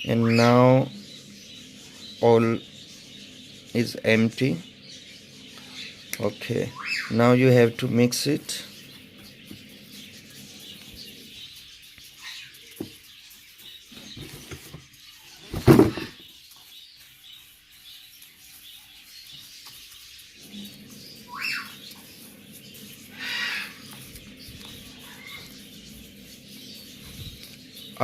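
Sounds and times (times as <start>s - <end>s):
bird chirps: 0.0s - 28.0s
bird food rustling: 8.7s - 28.0s.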